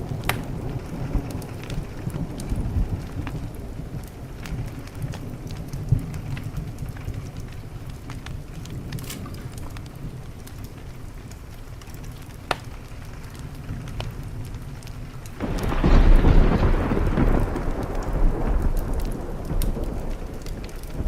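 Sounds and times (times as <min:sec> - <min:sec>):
rain falling: 0:00.0 - 0:21.0
thunderclap and rumble: 0:00.0 - 0:21.0
wood fire crackling: 0:00.0 - 0:21.0.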